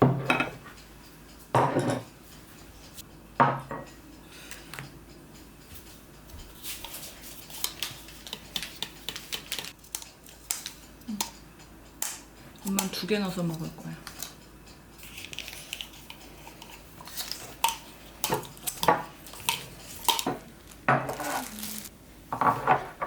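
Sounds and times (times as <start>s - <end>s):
dishes and cutlery clinking: 0.0s - 0.8s, 1.5s - 2.2s, 15.0s - 21.4s, 22.3s - 23.0s.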